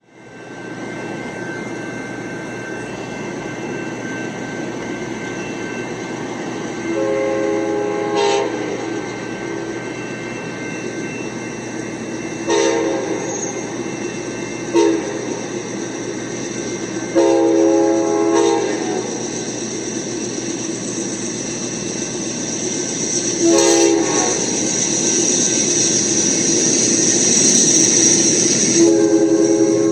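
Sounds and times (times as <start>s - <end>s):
train rumbling: 0.0s - 29.9s
train horn blasts: 6.9s - 9.0s, 12.5s - 13.6s, 14.7s - 15.3s, 17.1s - 19.2s, 23.4s - 24.6s, 28.8s - 29.9s.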